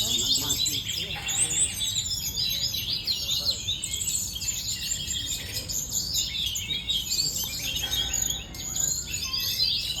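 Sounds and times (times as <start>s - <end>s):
songbird singing: 0.0s - 10.0s.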